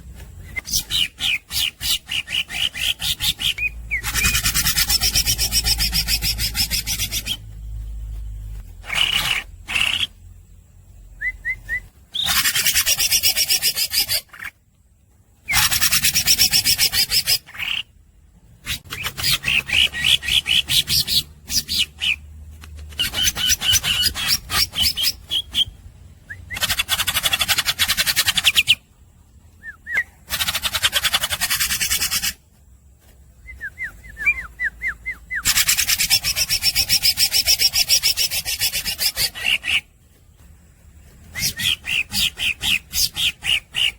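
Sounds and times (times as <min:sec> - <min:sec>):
bird buzzy rasping chatter: 0:00.6 - 0:10.3, 0:12.1 - 0:14.6, 0:15.4 - 0:17.9, 0:18.6 - 0:22.2, 0:22.8 - 0:25.8, 0:26.6 - 0:28.8, 0:30.0 - 0:32.5, 0:35.4 - 0:43.9
bird high whistled notes: 0:41.3 - 0:43.2.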